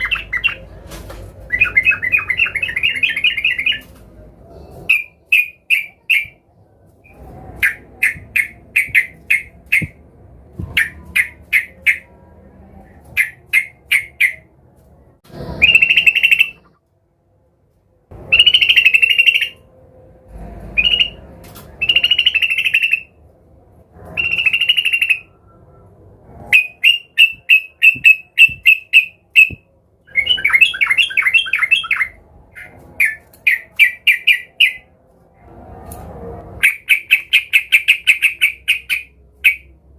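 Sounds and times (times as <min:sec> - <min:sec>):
bird chirping quickly: 0:07.0 - 0:10.0.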